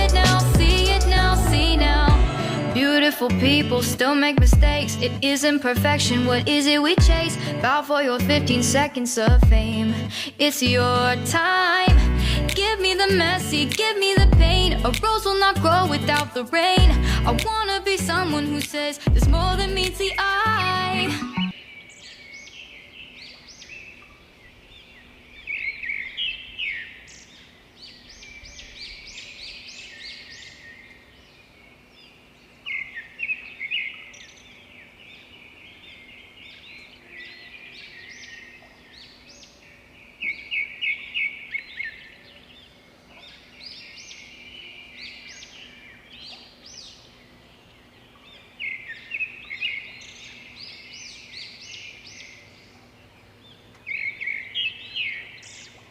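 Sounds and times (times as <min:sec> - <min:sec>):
small birds chirping: 0:19.6 - 0:55.9.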